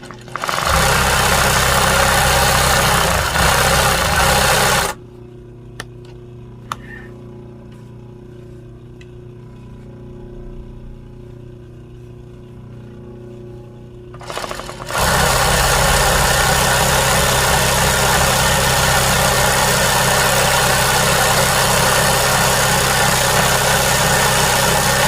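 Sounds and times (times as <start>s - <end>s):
sewing machine stitching: 0.0s - 5.0s, 14.2s - 25.0s
low steady hum: 4.9s - 19.1s.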